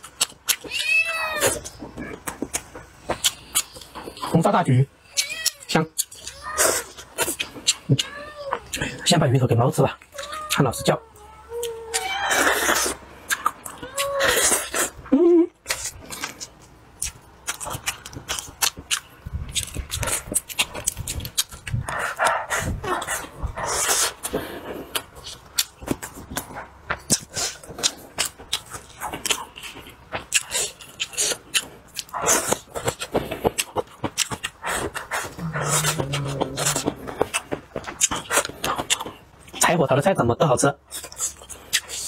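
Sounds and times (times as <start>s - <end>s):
man chewing and lip-smacking: 0.0s - 9.1s, 9.9s - 39.8s, 40.8s - 42.0s
mouth clicks: 30.4s - 39.1s.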